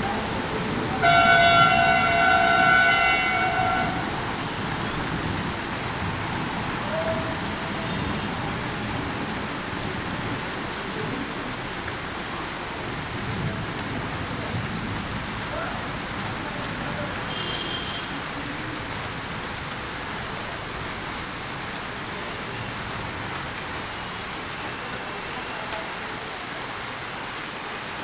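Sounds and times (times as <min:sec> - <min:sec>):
rain falling on a pond: 0:00.0 - 0:28.0
horn blast: 0:01.0 - 0:04.4.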